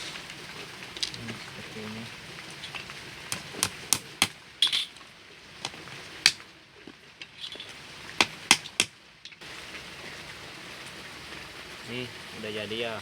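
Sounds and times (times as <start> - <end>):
hammer tapping on wood: 8.2 - 8.9.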